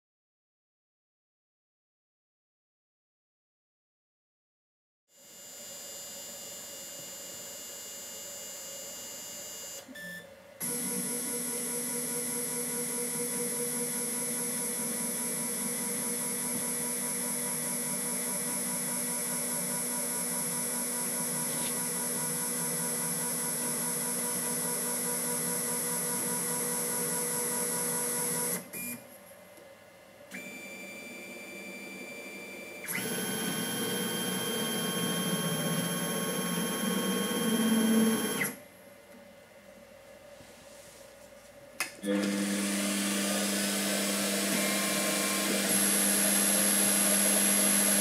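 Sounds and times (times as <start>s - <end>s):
lathe motor whine: 10.6s - 28.6s, 30.4s - 38.6s, 42.0s - 48.0s.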